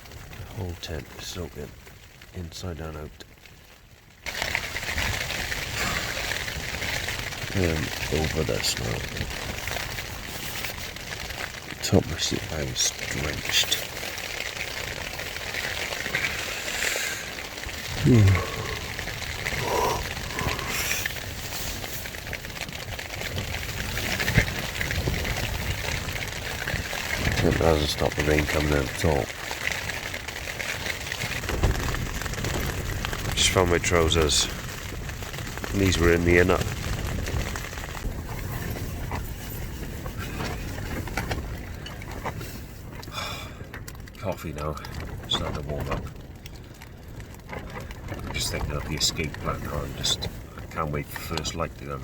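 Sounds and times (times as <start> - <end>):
rain on tent fabric: 0.0 - 52.0
strong wind: 0.0 - 52.0
low rumble: 16.0 - 29.1.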